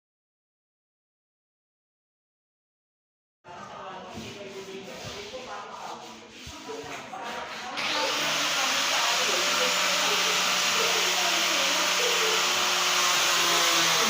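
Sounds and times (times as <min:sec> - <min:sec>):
electric sander running on wood: 0:07.8 - 0:14.0
sander switching on: 0:07.8 - 0:14.0.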